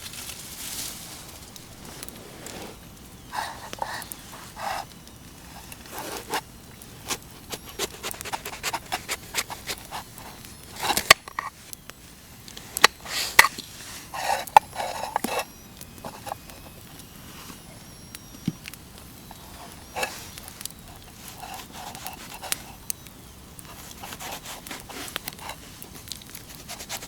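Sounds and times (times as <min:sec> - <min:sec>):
camping gear scraping and rustling: 0:00.0 - 0:11.8, 0:12.6 - 0:17.7, 0:19.2 - 0:22.9, 0:23.6 - 0:27.0.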